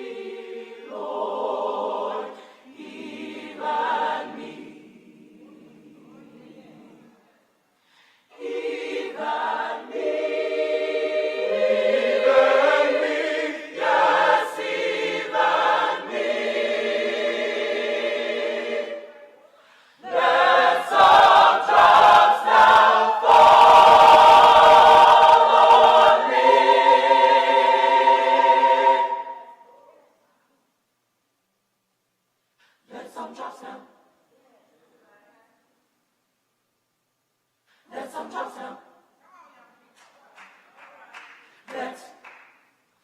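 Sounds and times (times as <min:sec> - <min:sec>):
church choir singing: 0:00.0 - 0:07.1, 0:08.2 - 0:29.8, 0:32.8 - 0:34.1, 0:37.8 - 0:39.0, 0:41.5 - 0:42.6.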